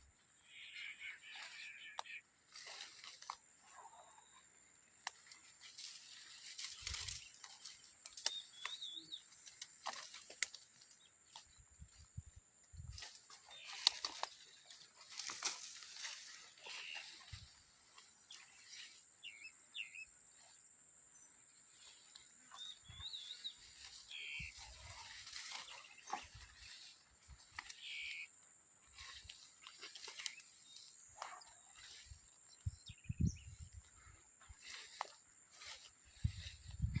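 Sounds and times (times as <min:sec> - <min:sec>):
birds chirping: 0:00.0 - 0:37.0
faint clicks and rustles: 0:05.0 - 0:12.0, 0:12.6 - 0:19.0, 0:28.8 - 0:32.7.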